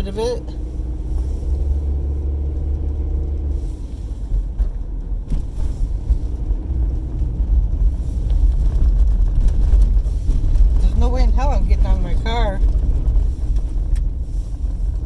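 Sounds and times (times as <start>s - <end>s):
car rumble inside cabin: 0.0s - 15.0s.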